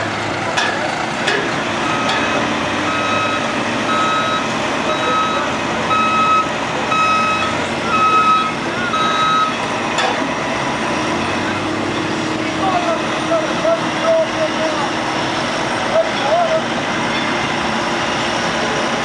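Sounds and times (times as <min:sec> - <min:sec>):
truck engine running: 0:00.0 - 0:19.0
truck reverse alarm beeping: 0:01.7 - 0:11.7.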